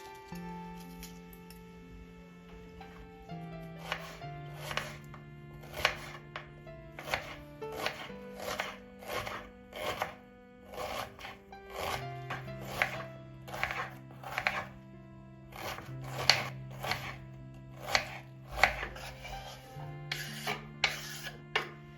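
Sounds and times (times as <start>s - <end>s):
soft background music: 0.0s - 21.9s
knife chopping on cutting board: 3.8s - 14.8s, 15.5s - 17.2s, 17.8s - 21.8s.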